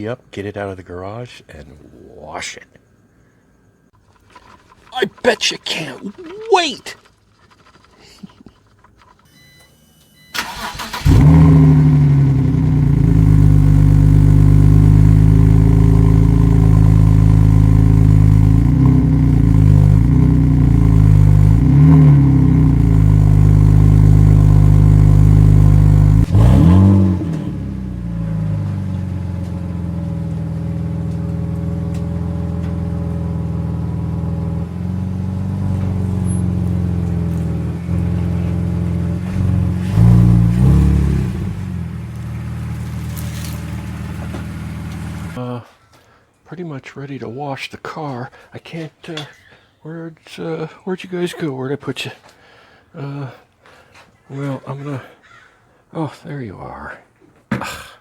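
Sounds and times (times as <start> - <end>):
car engine cranking and starting: 4.0 - 45.4
car engine fast idle: 10.3 - 45.4.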